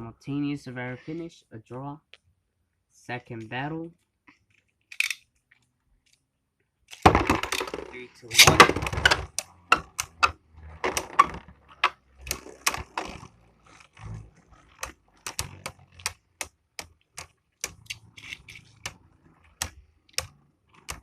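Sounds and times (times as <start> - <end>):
sharp irregular clicks and knocks: 3.4 - 21.0.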